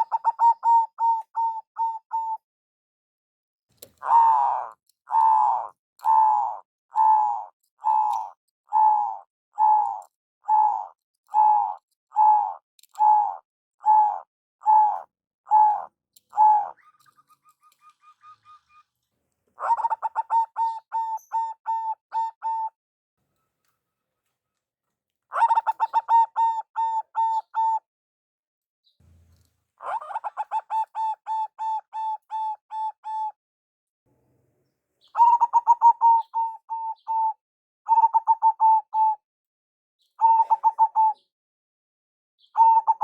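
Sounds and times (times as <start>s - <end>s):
dove cooing: 0.0s - 2.4s, 4.0s - 19.0s, 19.6s - 22.8s, 25.3s - 27.8s, 29.8s - 33.4s, 35.1s - 39.2s, 40.2s - 41.3s, 42.5s - 43.0s.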